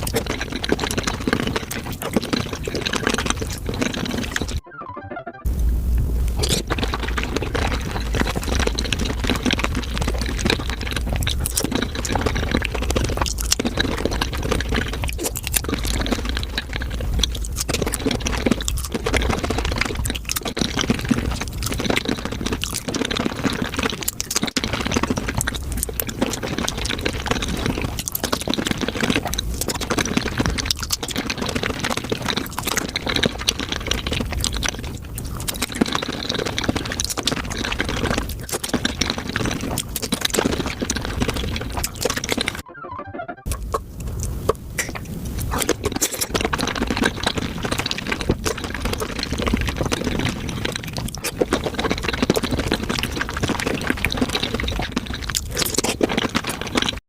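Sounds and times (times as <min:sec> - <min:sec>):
wet chewing and slurping: 0:00.0 - 0:04.6, 0:05.8 - 0:42.6, 0:43.5 - 0:57.0
low hum: 0:04.3 - 0:11.3.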